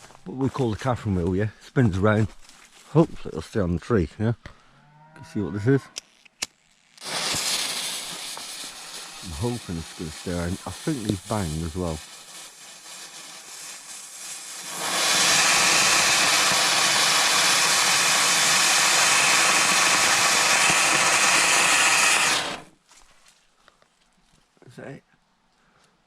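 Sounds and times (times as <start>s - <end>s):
firework hissing sparks: 6.6s - 22.7s
faint firework fizz: 7.0s - 22.7s.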